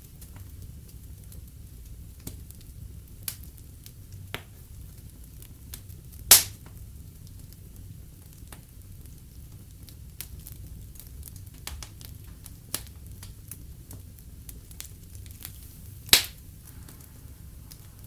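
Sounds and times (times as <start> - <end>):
wood fire crackling: 0.0 - 18.0
loud sharp pop: 6.3 - 6.6, 16.1 - 17.0.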